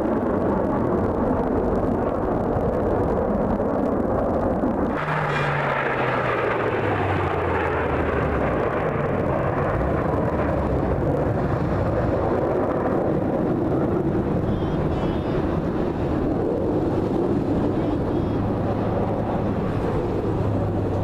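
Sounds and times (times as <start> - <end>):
airplane engine passing: 4.8 - 21.0.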